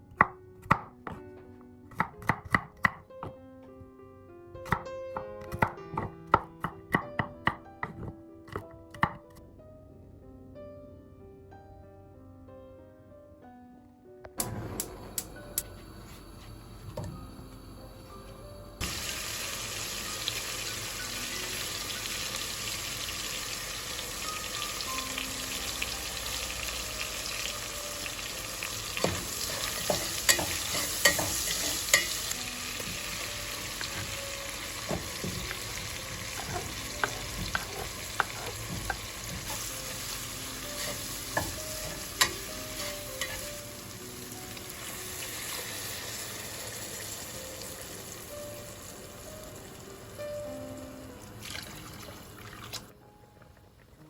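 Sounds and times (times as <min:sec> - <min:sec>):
food sizzling in a pan: 0:18.8 - 0:51.0
utensil tapping a pan: 0:29.0 - 0:32.2, 0:34.9 - 0:39.7, 0:40.8 - 0:43.5.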